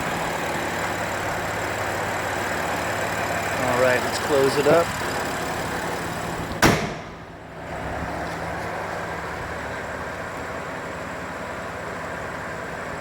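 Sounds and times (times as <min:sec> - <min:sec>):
car engine idling: 0:00.0 - 0:13.0
car hood slamming shut: 0:06.5 - 0:07.4.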